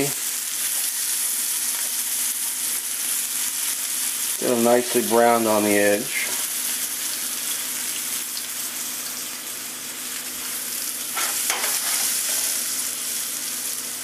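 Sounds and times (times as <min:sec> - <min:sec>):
potatoes sizzling in a skillet: 0:00.0 - 0:14.0
skillet scraping on a stove: 0:11.2 - 0:12.7.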